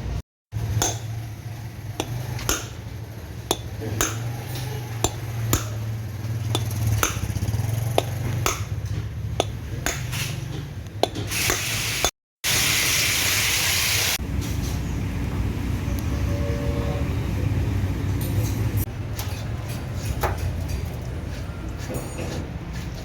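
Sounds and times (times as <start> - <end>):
hammer tapping on metal: 0.7 - 1.2, 1.9 - 11.8.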